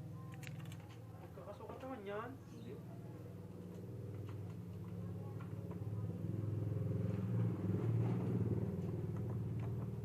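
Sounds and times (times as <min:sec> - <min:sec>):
motorcycle engine rumbling: 0:02.7 - 0:10.0.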